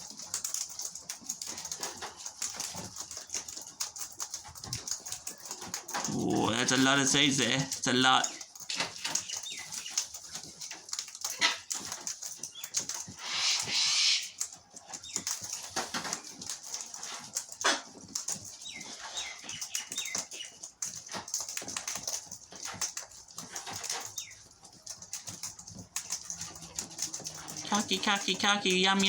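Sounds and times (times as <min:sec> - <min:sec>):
bird wings fluttering: 0:13.0 - 0:14.5.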